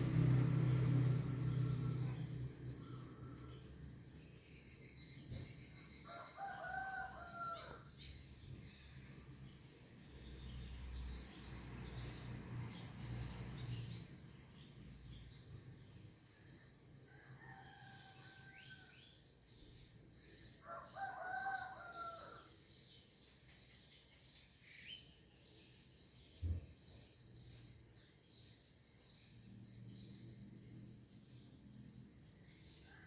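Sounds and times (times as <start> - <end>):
small birds or insects chirping: 0.0 - 33.0
rooster crowing: 1.3 - 3.7, 6.1 - 7.9, 17.1 - 19.0, 20.6 - 22.5.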